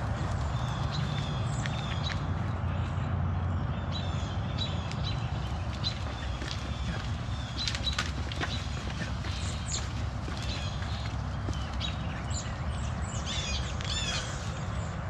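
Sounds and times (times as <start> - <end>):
small birds chirping: 0.0 - 15.0
footsteps on concrete: 4.9 - 12.5.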